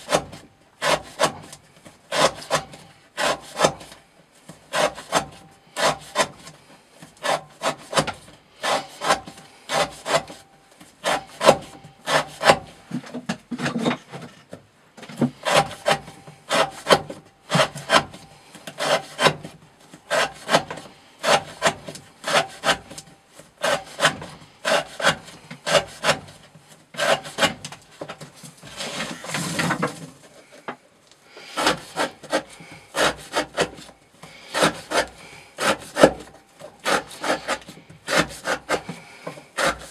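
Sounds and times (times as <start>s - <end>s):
knife slicing rope on wood: 0.0s - 4.0s, 4.7s - 12.8s, 15.3s - 30.4s, 31.5s - 39.9s
scraping rustle: 12.1s - 30.7s.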